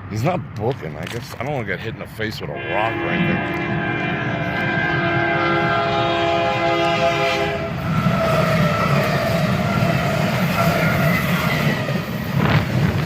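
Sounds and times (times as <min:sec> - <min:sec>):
train wheels rumbling on rail: 0:00.0 - 0:13.0
train horn: 0:02.6 - 0:11.3.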